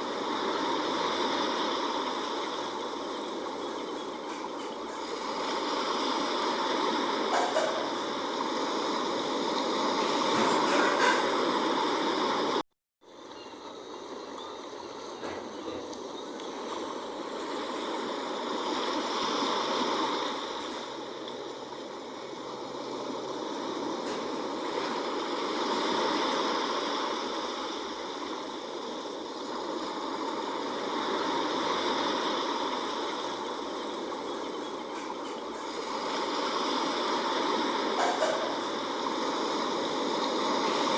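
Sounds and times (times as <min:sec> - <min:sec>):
sea waves washing in and out: 0:00.0 - 0:40.9.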